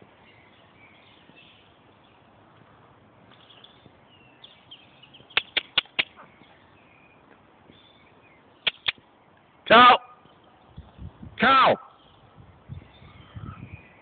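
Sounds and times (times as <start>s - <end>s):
birds chirping faintly: 0.0s - 11.2s, 11.8s - 14.0s
low outdoor hiss: 0.0s - 14.0s
sharp clicks: 5.3s - 6.2s, 8.6s - 9.0s.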